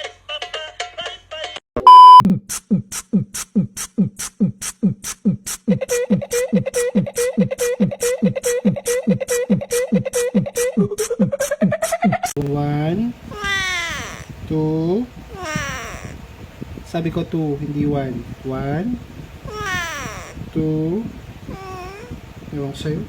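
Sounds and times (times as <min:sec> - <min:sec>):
loud single-tone beep: 0:01.8 - 0:02.2
held tone: 0:01.8 - 0:02.3
vocal music: 0:02.3 - 0:12.2.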